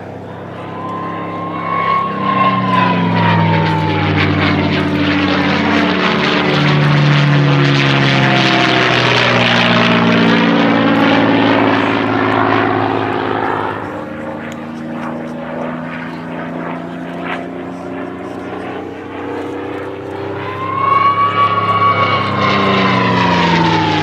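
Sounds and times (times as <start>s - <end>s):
propeller plane flying past: 0.0s - 24.0s
thin whistle falling in pitch: 0.5s - 4.7s, 20.3s - 24.0s.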